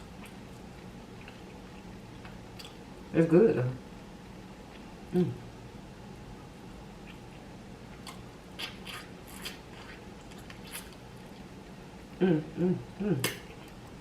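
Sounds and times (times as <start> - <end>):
person humming: 5.1 - 5.4, 12.2 - 13.4.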